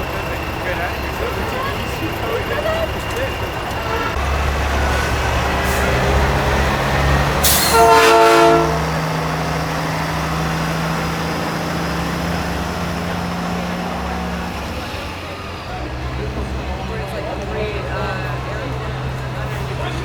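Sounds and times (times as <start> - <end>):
diesel truck engines running: 0.0 - 20.0
truck air horn blast: 3.8 - 9.3.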